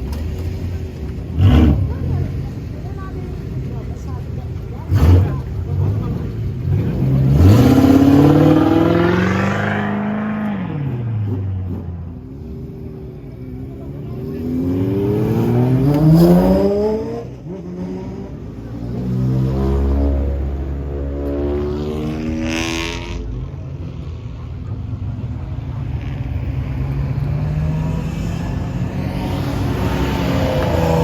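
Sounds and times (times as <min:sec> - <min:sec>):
car engine revving hard: 0:04.9 - 0:11.8, 0:27.3 - 0:31.0.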